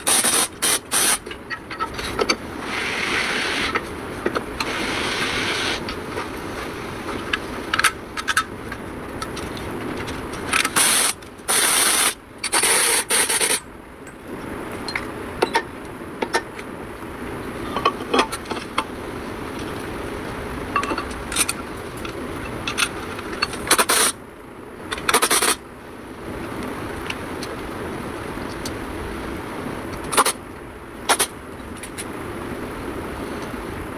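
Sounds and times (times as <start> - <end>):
short hissing bursts: 0.0 - 1.2, 2.6 - 3.8, 4.6 - 5.9.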